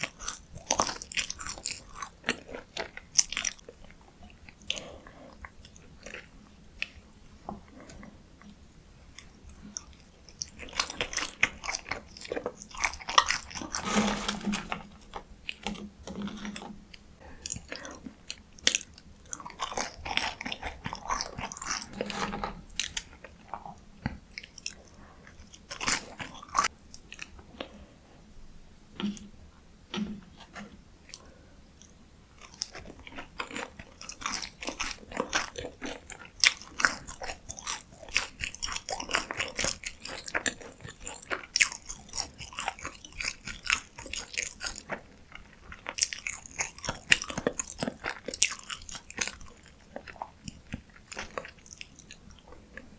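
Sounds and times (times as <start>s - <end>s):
crunchy chewing: 30.0s - 52.9s.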